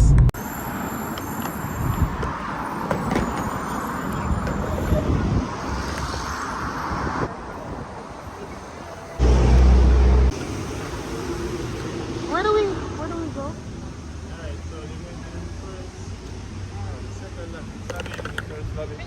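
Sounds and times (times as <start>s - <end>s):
car road and engine noise: 0.0s - 19.0s.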